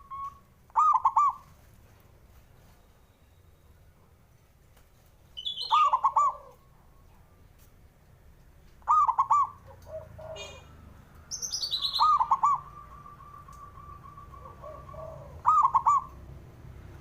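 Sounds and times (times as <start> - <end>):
dove cooing: 0.0 - 1.5, 5.5 - 6.7, 8.8 - 10.8, 11.6 - 16.3.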